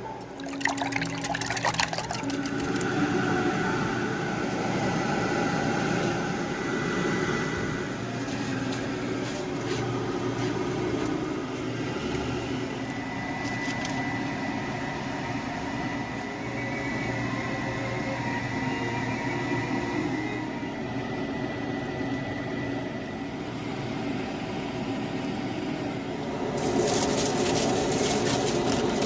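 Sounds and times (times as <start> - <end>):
high whine: 0.0 - 8.2
kitchen appliance humming: 0.0 - 29.0.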